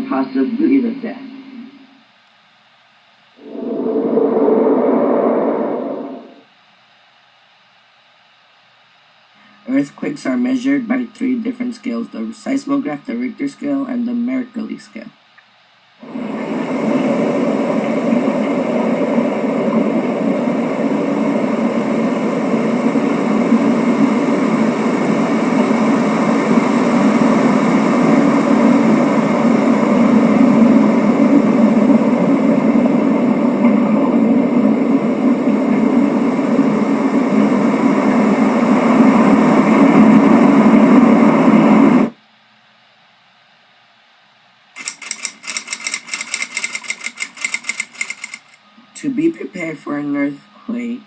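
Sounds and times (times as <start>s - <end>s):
loud steady mechanical noise: 16.0s - 42.2s, 44.8s - 49.1s.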